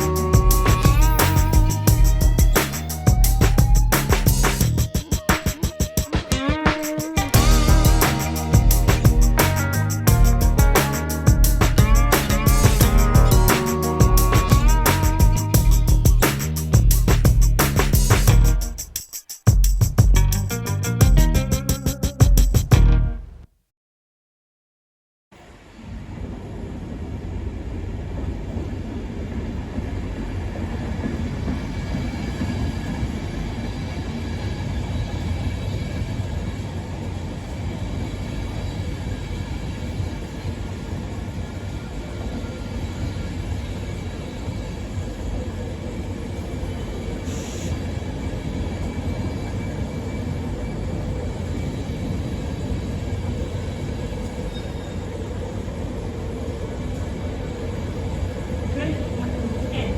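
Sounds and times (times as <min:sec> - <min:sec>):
short high hiss: 0:00.0 - 0:03.1, 0:06.9 - 0:10.1, 0:10.8 - 0:19.5, 0:47.2 - 0:47.8
train rumbling: 0:00.0 - 0:18.9, 0:25.4 - 0:59.9.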